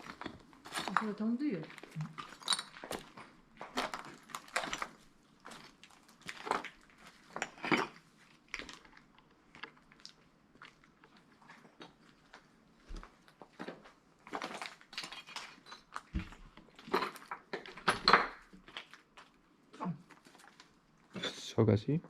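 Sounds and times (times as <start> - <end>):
footsteps crunching over rubble: 0.0 - 19.4.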